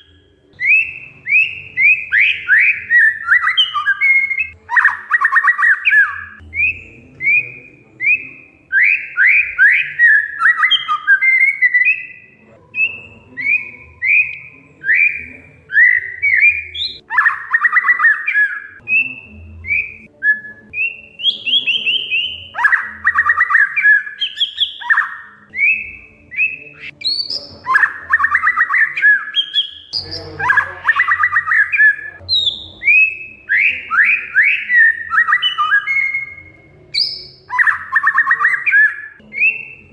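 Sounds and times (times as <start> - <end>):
magpie-robin whistled song: 0.0 - 39.9
harsh rattling bird chatter: 21.2 - 38.9.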